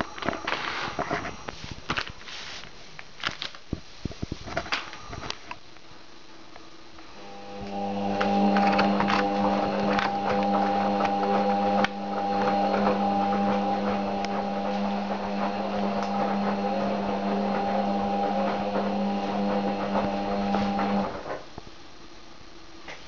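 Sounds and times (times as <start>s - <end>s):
washing machine running: 7.2s - 21.5s.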